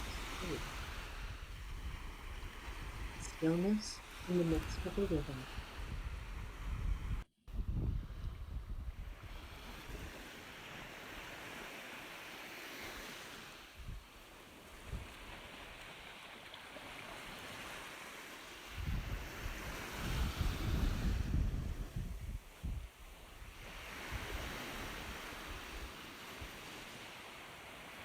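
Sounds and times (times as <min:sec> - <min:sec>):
low wind rumble: 0:00.0 - 0:10.2, 0:18.7 - 0:25.9
ocean surf washing: 0:00.0 - 0:28.0.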